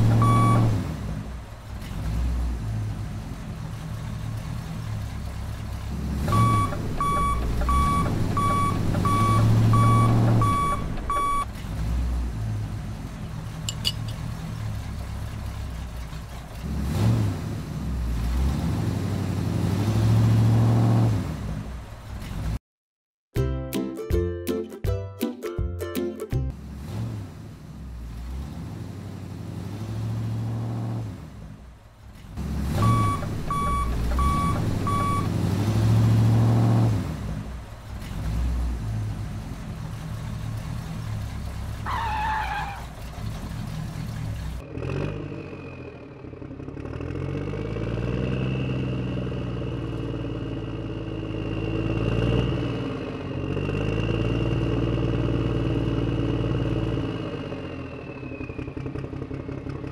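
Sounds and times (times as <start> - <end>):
short beeps: 0.1 - 0.7, 6.3 - 11.5, 32.8 - 35.3.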